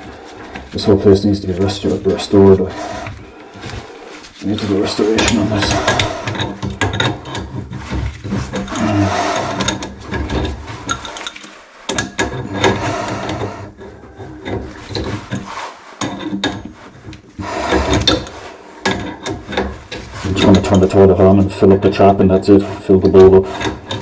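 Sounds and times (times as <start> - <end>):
scraping and rubbing: 0.0 - 24.0
hard objects knocking and clicking: 5.1 - 20.9.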